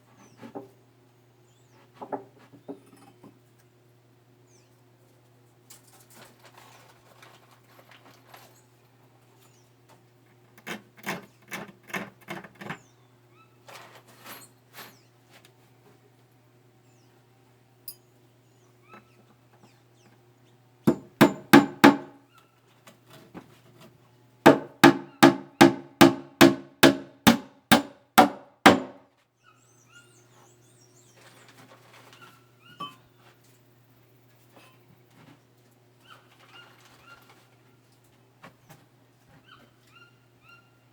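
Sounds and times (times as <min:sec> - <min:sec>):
hammer striking wood: 0:20.9 - 0:22.2, 0:24.5 - 0:29.0.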